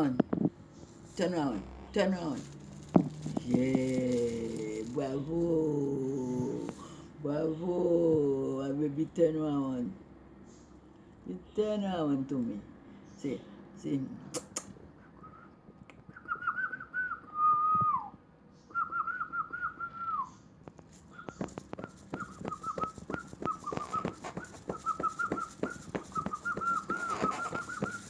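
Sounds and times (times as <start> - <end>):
parrot whistling a tune: 16.1 - 20.4, 21.1 - 28.0
rapid sharp clicks: 20.8 - 28.0.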